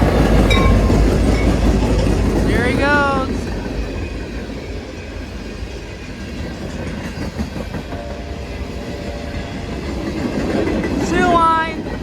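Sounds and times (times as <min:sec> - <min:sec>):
wheels clicking over rail joints: 0:00.0 - 0:04.8
freight train cars rumbling past: 0:00.0 - 0:12.0.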